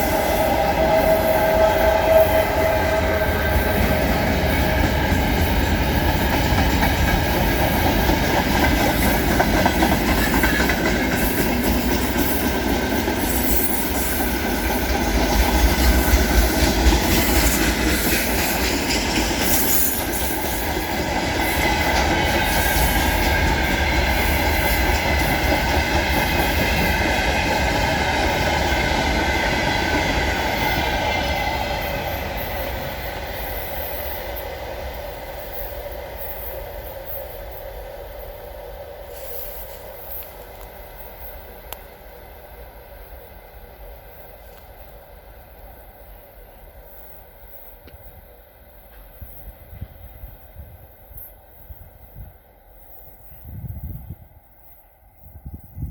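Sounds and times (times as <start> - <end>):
high wheel squeal: 0.0 - 4.9
train wheels clattering over rails: 0.0 - 37.2.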